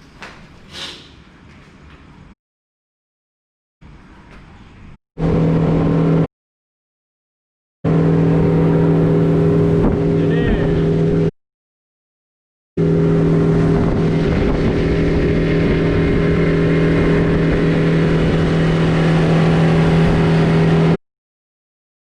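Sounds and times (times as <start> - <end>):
boat engine running: 5.2 - 6.3, 7.9 - 11.3, 12.8 - 21.0.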